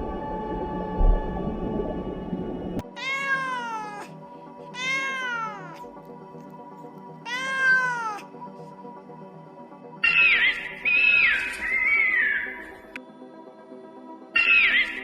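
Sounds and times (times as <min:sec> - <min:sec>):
soft background music: 0:00.0 - 0:15.0
cat meowing: 0:02.8 - 0:05.9, 0:07.2 - 0:08.3.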